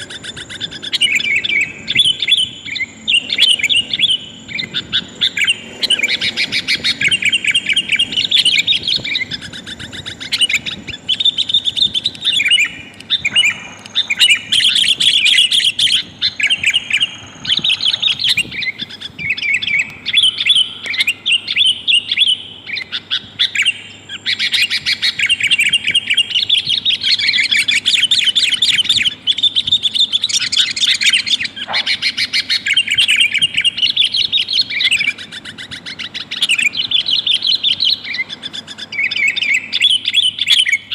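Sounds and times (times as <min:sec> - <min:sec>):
bird chattering calls: 0:00.0 - 0:40.9.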